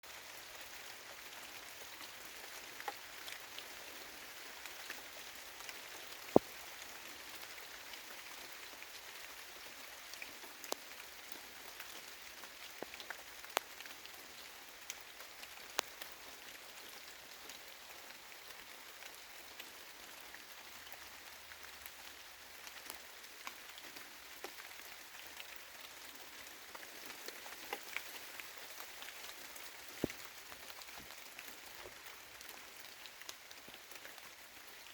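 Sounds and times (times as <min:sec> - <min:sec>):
light rain on trees: 0:00.0 - 0:34.9
water drops and drips: 0:05.6 - 0:06.9, 0:22.8 - 0:34.2.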